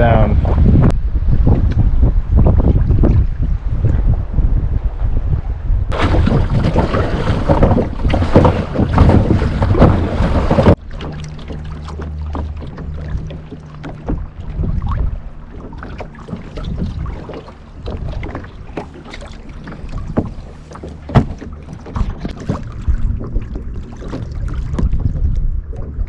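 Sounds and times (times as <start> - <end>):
wind buffeting microphone: 0.0 - 26.0
knock on kayak: 5.9 - 10.8, 15.6 - 25.3
paddle splashes: 5.9 - 26.0
water slapping against hull: 5.9 - 26.0.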